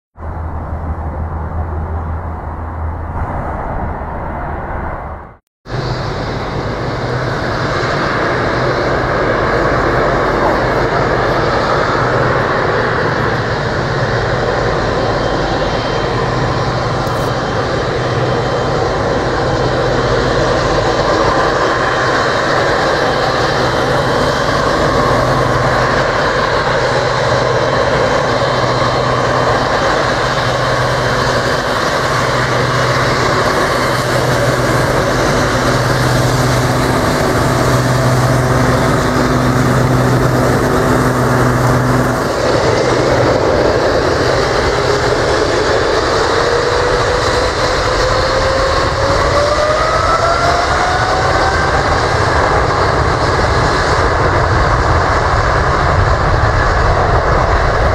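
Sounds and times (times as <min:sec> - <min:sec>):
low pulsing hum: 0:00.2 - 0:07.9
vehicle mechanical drone: 0:00.2 - 0:57.9.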